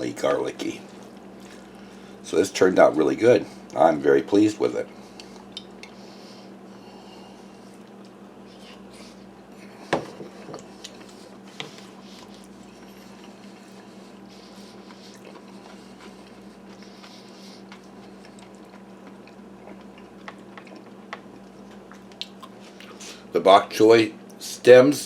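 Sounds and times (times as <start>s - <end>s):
steady low hum: 0.0s - 25.0s
quiet chewing: 0.8s - 2.2s, 4.8s - 6.5s, 7.3s - 23.2s.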